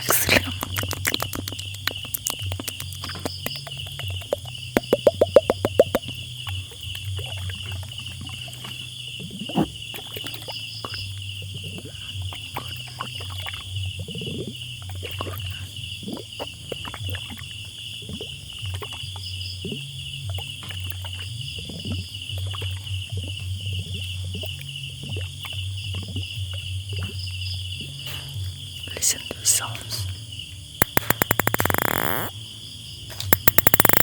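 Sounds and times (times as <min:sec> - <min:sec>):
high pulsing chirring: 0:30.8 - 0:32.3, 0:33.4 - 0:34.0.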